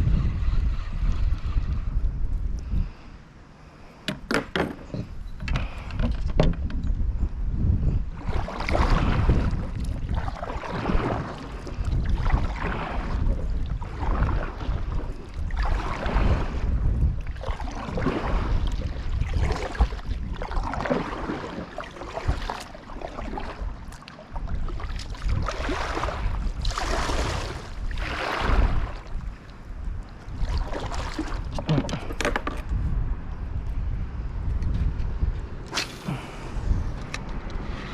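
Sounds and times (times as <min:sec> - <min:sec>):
wind rumble on microphone: 0:00.0 - 0:37.9
paddle strokes splashing water: 0:08.2 - 0:32.6.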